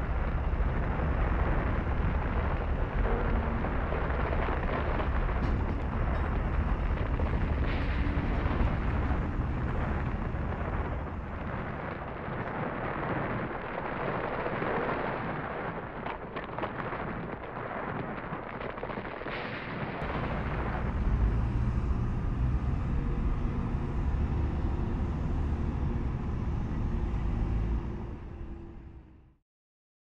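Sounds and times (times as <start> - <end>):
crackle of small clicks: 0.0 - 20.9
heavy mechanical rumble: 0.0 - 29.4.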